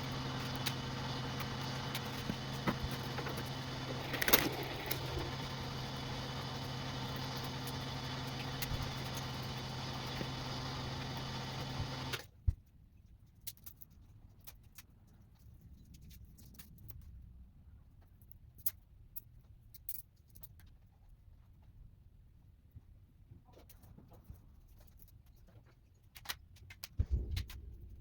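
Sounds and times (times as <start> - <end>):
electric motor humming: 0.0 - 12.2.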